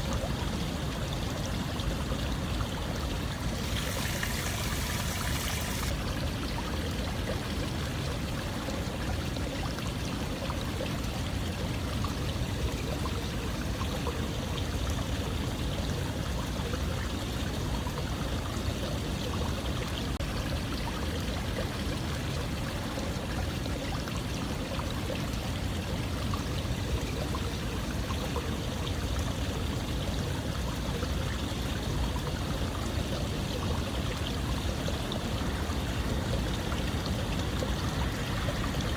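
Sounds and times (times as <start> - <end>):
running water rushing: 0.0 - 10.3, 31.8 - 38.9
bright hissy water layer: 0.0 - 10.8, 32.6 - 38.9.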